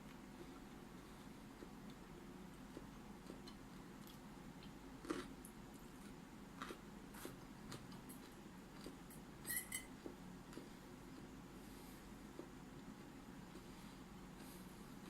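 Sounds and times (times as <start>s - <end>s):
person chewing food: 0.4s - 9.2s, 10.0s - 11.4s.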